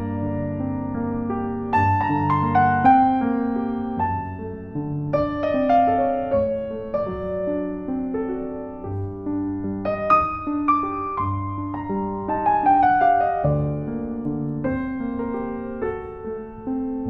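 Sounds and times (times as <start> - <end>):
gentle solo piano: 0.0 - 17.0.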